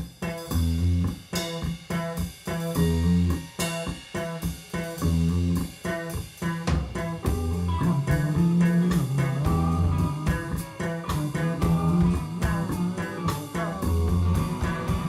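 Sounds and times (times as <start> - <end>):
blues-rock band playing: 0.0 - 15.0.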